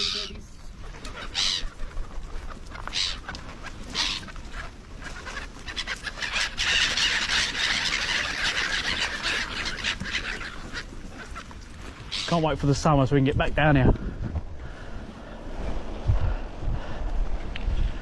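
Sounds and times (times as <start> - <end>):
seagulls calling: 0.0 - 13.8.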